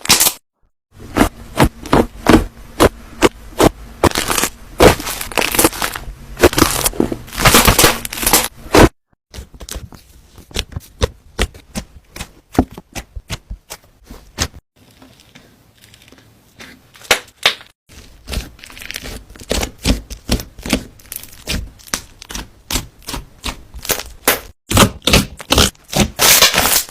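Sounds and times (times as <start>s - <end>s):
slime popping and crackling: 1.2s - 8.9s, 17.0s - 26.9s.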